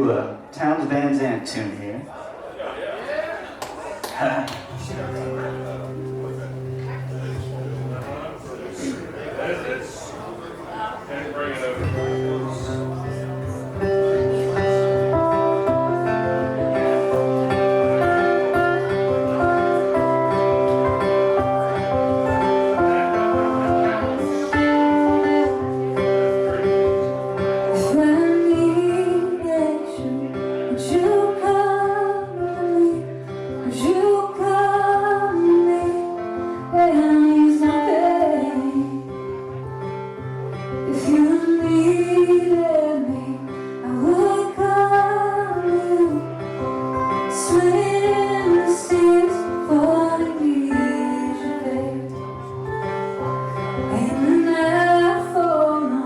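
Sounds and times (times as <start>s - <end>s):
guitar strummed and picked: 11.8s - 56.0s
woman singing: 27.7s - 39.3s, 40.8s - 52.5s, 53.8s - 56.0s.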